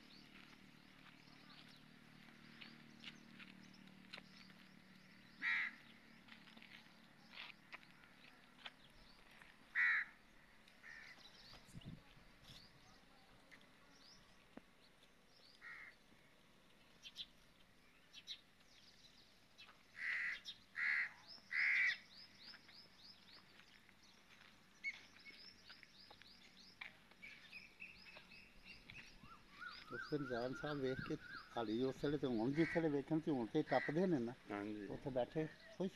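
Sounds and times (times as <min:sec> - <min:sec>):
small birds chirping: 0:00.0 - 0:35.9
loud short bird calls: 0:05.1 - 0:06.0, 0:09.7 - 0:10.2, 0:10.8 - 0:11.5, 0:15.6 - 0:16.0, 0:19.9 - 0:22.3, 0:27.2 - 0:31.7.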